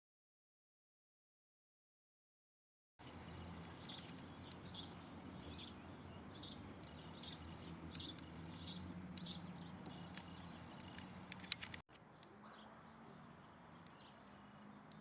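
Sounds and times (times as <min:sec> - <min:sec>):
bird calling: 0:03.1 - 0:15.0.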